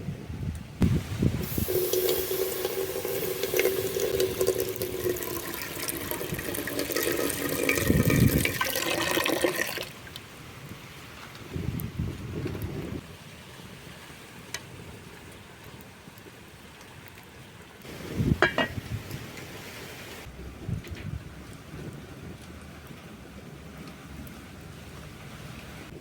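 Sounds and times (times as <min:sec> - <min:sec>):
water pouring: 0:01.4 - 0:10.2.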